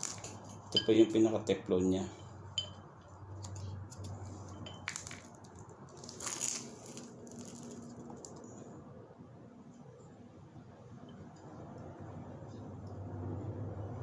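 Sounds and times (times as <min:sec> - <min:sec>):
small clicks and clinks: 0:00.0 - 0:01.1, 0:02.6 - 0:08.6
low steady hum: 0:00.0 - 0:14.0.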